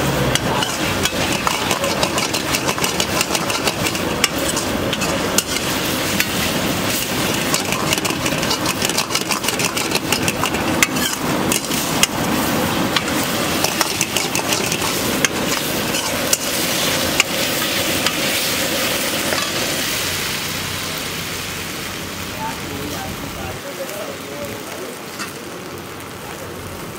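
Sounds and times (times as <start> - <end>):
frying sizzle: 0.0 - 26.9
ladle clanking against wok: 0.3 - 12.2, 12.9 - 18.3.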